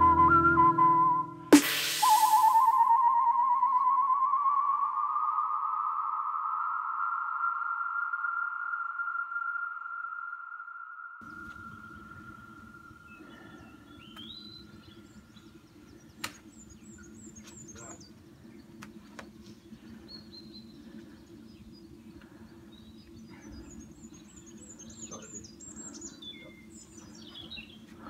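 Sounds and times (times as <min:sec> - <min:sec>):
songbirds chirping and singing: 0:11.2 - 0:28.0
steady low hum: 0:11.2 - 0:28.0.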